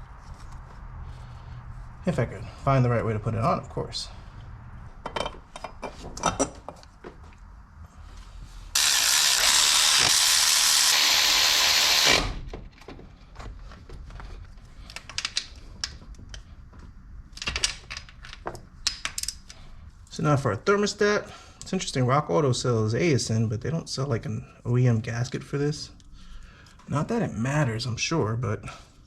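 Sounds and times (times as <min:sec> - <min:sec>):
loud steady hiss: 0:08.7 - 0:12.5
ratchet wrench clicking: 0:08.8 - 0:12.3.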